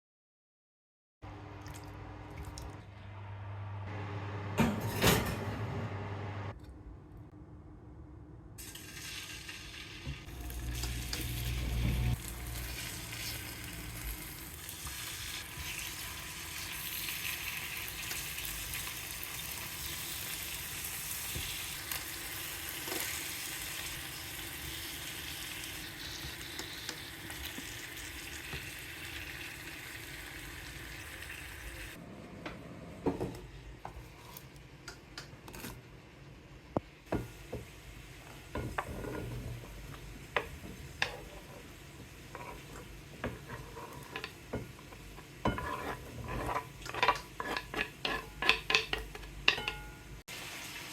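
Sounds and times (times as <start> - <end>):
food sizzling in a pan: 8.6 - 32.0, 37.1 - 50.9.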